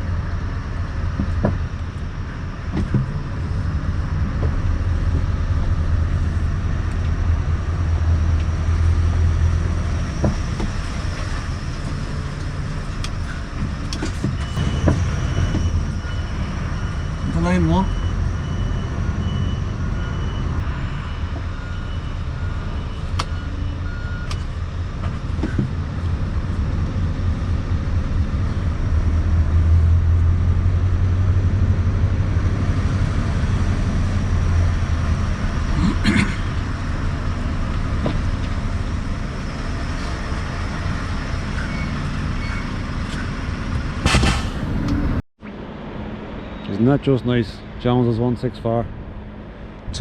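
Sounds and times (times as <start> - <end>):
truck engine running: 0.0 - 46.2.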